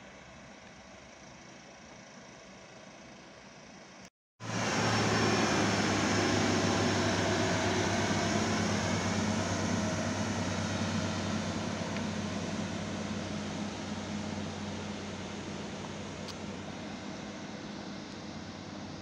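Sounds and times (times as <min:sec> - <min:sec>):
train humming and rolling: 0:04.4 - 0:19.0.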